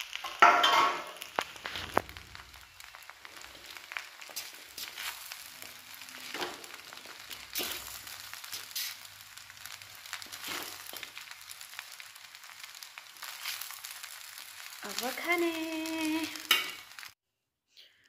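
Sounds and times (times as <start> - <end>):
noodles sizzling in a pan: 0.0 - 17.2
spatula scraping a pan: 3.9 - 9.1, 10.1 - 11.4, 12.7 - 14.1, 16.4 - 17.1.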